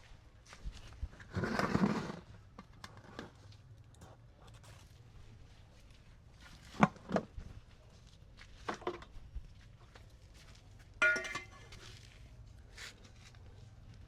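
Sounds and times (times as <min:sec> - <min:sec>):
pots and utensils clinking: 0:11.0 - 0:11.7.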